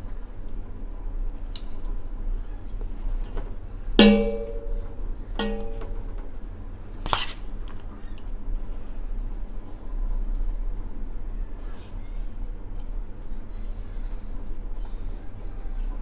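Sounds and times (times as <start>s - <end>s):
metal utensil striking pot: 4.0s - 6.1s.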